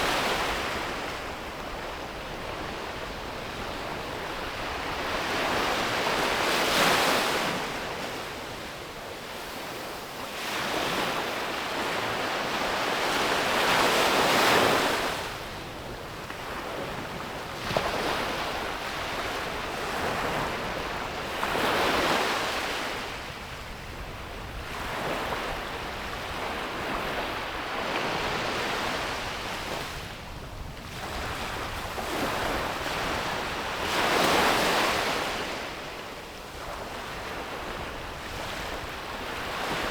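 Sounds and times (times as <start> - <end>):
ocean waves breaking on beach: 0.0 - 39.9
wind on microphone: 14.1 - 35.9.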